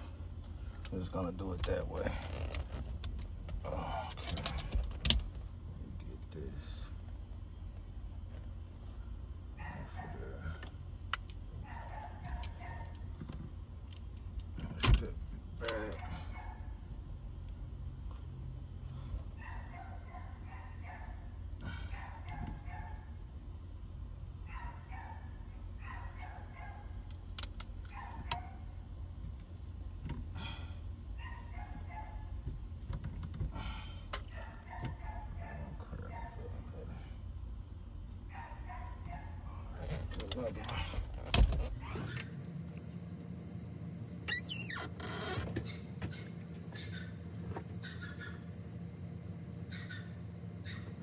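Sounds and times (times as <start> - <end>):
faint bird calls: 44.3 - 48.6, 49.6 - 51.0.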